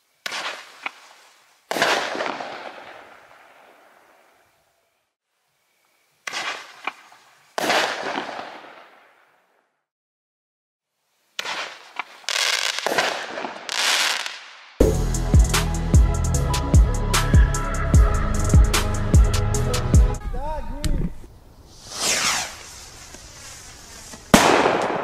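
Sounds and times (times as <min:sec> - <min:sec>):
firework bangs: 0:00.2 - 0:01.1, 0:01.7 - 0:04.1, 0:07.6 - 0:09.2, 0:11.4 - 0:15.0, 0:21.7 - 0:25.0.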